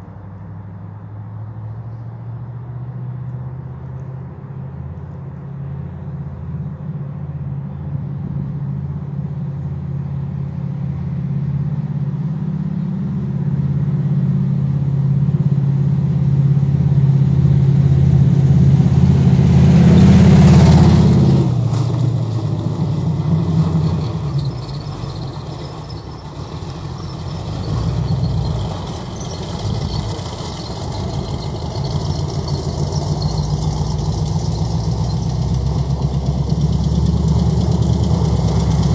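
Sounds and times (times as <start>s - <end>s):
vehicle engine running: 8.2s - 38.9s.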